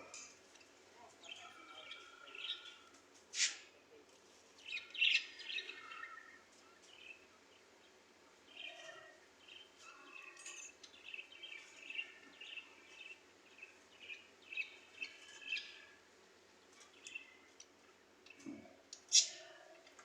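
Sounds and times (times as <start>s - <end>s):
parrots chirping: 19.1s - 19.4s.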